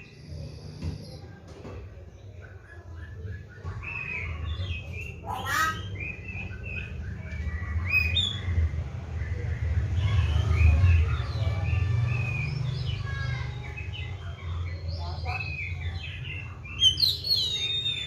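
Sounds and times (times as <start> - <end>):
bird singing whistled notes: 15.4 - 18.0.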